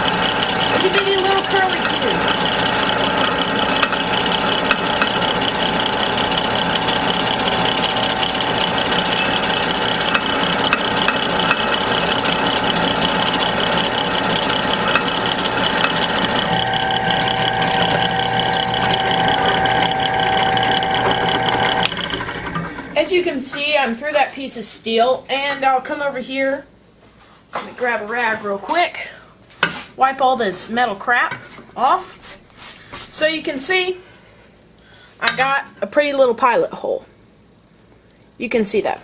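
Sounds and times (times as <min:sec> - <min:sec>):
drill bit chattering in steel: 0:00.0 - 0:22.1
drill press motor whine: 0:00.0 - 0:23.0.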